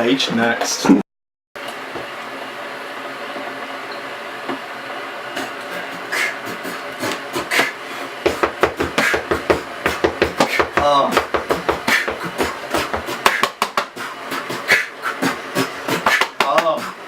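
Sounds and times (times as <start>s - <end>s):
rhythmic beat of clicks and thumps: 5.4s - 17.0s.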